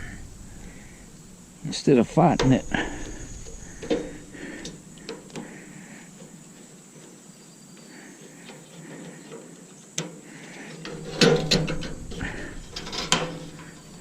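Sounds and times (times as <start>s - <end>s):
faint insect chirping: 0.0s - 14.0s
metallic clicks and clatter: 10.8s - 14.0s.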